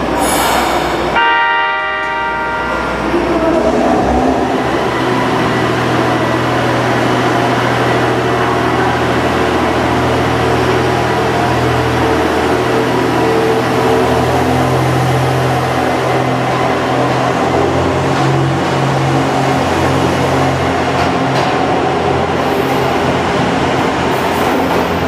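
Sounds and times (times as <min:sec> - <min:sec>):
train engine humming: 0:00.0 - 0:16.9.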